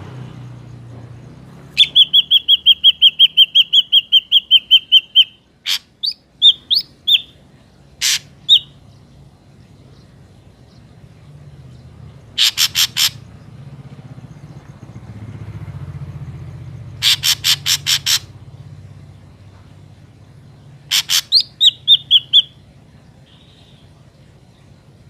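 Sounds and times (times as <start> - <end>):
bird harsh rapid calls: 1.7 - 8.9, 12.0 - 13.7, 16.8 - 18.7, 20.5 - 24.0
bird whistled notes: 1.8 - 7.4, 20.9 - 22.6.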